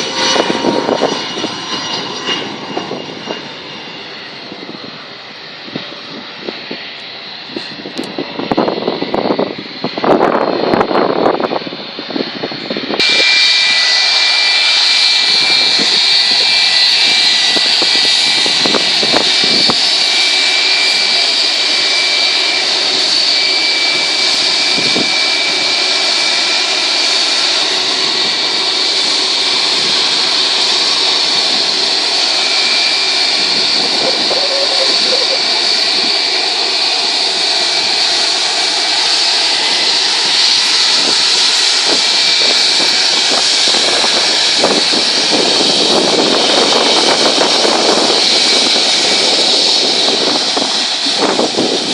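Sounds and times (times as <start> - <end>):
high engine whine: 0.0 - 51.9
jet engines roaring: 0.0 - 51.9.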